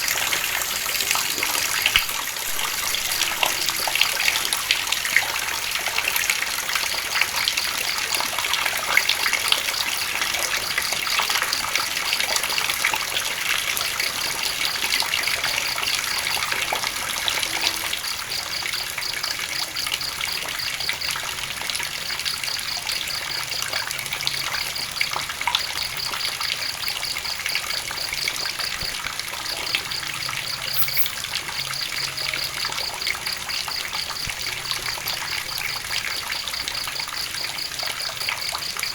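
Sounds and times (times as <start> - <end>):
rain falling: 0.0 - 38.9
high rapid pulsed chirping: 30.7 - 31.2.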